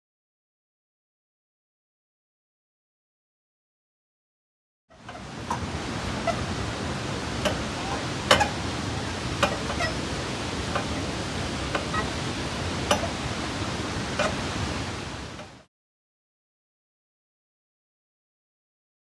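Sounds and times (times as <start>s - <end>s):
flowing water rushing: 5.0s - 15.7s.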